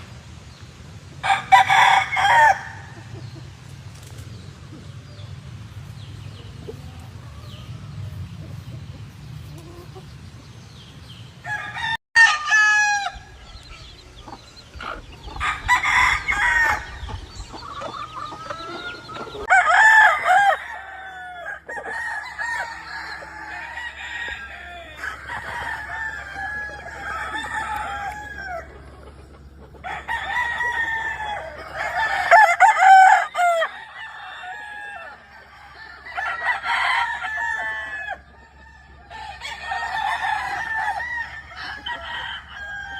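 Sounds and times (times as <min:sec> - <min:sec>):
hens clucking: 0:01.1 - 0:11.6, 0:13.0 - 0:42.9
roosters crowing: 0:01.2 - 0:03.4, 0:09.3 - 0:42.9.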